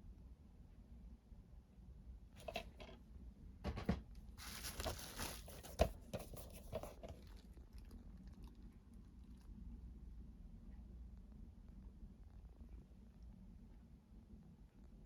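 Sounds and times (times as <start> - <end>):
packaging rustling and crinkling: 4.4 - 7.2.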